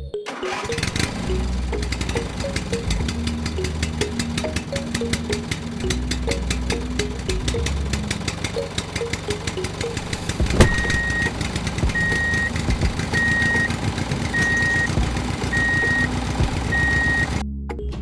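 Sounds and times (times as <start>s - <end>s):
engine running with rapid clicking: 0.3s - 17.4s
vehicle reversing alarm beeps: 9.1s - 11.3s, 11.9s - 17.4s.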